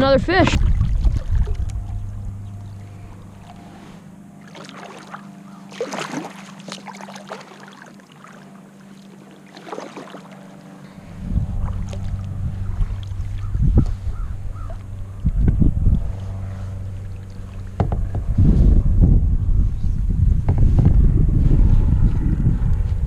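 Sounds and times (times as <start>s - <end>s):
wind rumble on microphone: 0.0s - 4.2s, 10.8s - 23.0s
steady low hum: 0.0s - 23.0s
water splashing around kayak: 0.4s - 18.9s.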